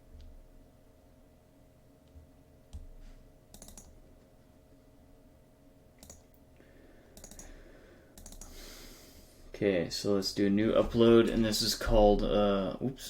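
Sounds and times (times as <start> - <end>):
faint steady hum: 0.0 - 13.0
computer mouse and keyboard clicks: 3.5 - 4.0, 6.0 - 6.4, 7.2 - 7.5, 8.2 - 8.6.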